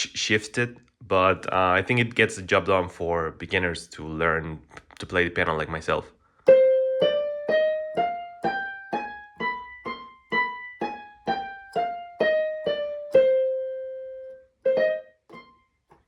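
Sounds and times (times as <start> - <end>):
electronic keyboard piano notes: 6.5 - 16.0.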